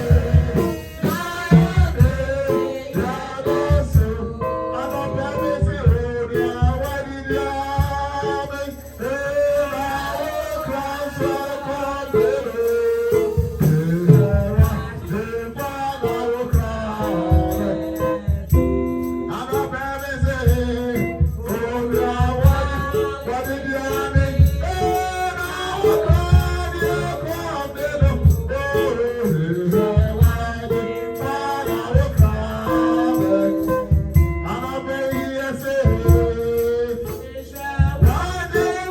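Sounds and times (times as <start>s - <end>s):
band with steady bass beat: 0.0s - 38.9s
people singing: 0.0s - 38.9s.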